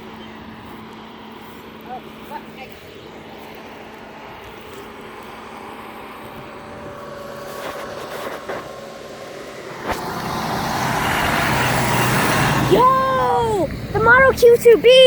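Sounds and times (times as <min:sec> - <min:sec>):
heavy vehicle engine approaching: 0:00.0 - 0:15.0.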